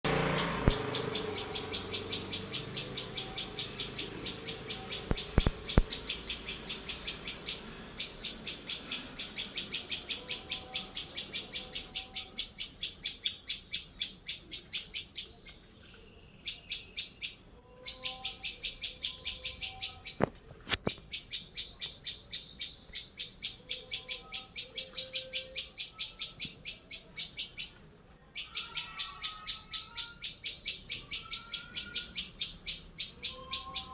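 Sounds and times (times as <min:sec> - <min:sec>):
bird chirping rapidly: 0:00.1 - 0:20.2, 0:20.9 - 0:27.8, 0:28.4 - 0:33.9
sharp clicks: 0:00.6 - 0:01.4, 0:05.0 - 0:06.2.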